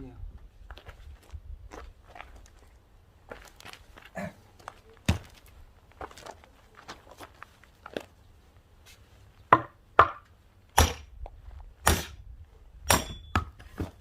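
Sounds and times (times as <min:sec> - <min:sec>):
axe chopping firewood log: 0:09.5 - 0:11.1, 0:11.8 - 0:12.2, 0:12.8 - 0:14.0.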